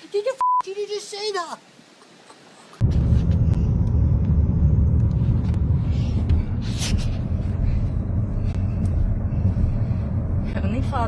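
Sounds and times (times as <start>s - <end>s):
heavy low storm rumble: 2.8s - 11.0s.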